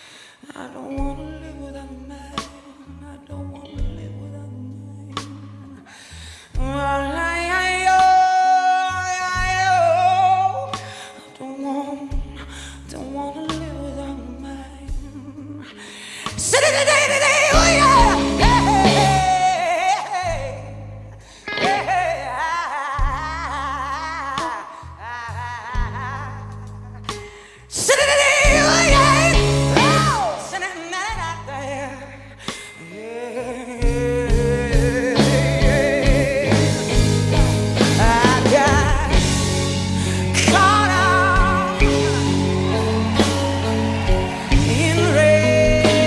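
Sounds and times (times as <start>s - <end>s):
blues band playing: 6.6s - 46.0s
singer wailing with vibrato: 16.4s - 20.2s, 27.8s - 31.1s, 37.8s - 46.0s.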